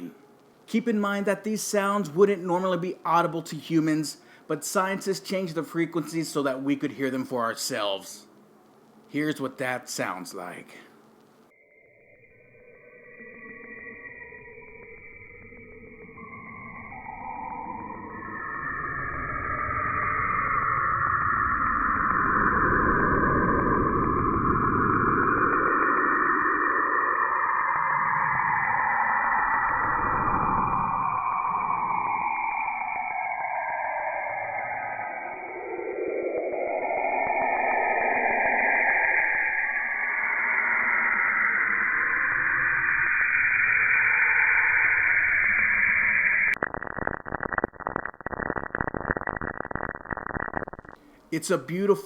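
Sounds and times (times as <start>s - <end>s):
eerie hissing whoosh: 16.6s - 46.6s
dense crackling: 22.1s - 52.0s.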